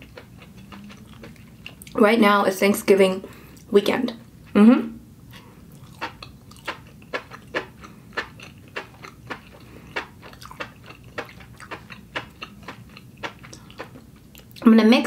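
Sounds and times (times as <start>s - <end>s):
chewing noodles with wet clicks: 0.0s - 2.0s, 5.7s - 14.6s.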